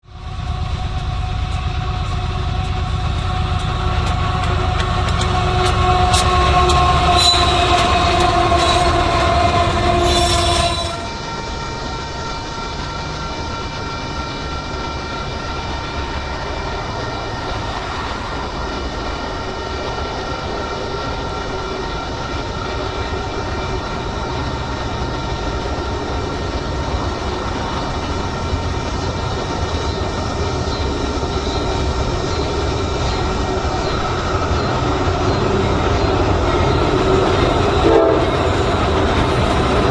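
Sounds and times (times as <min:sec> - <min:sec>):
rumble of passing rail cars: 0:00.0 - 0:39.9
faint high squealing: 0:06.1 - 0:11.2.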